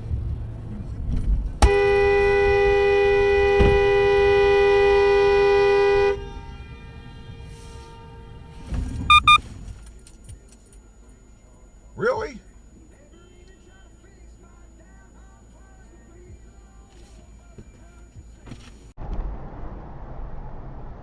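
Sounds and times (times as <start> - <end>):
low road rumble: 0.0 - 16.8, 17.6 - 21.0
car horn blast: 1.6 - 9.4
short high-pitched beeps: 9.1 - 9.4.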